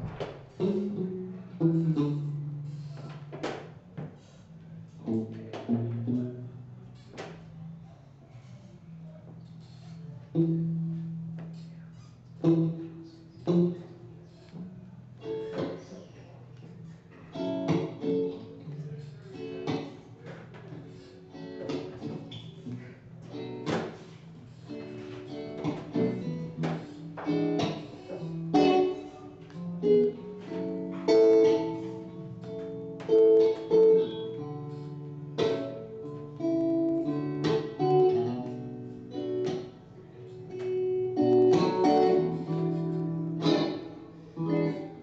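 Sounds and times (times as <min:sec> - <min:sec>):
acoustic guitar picked and strummed: 0:00.0 - 0:04.1, 0:21.4 - 0:45.0.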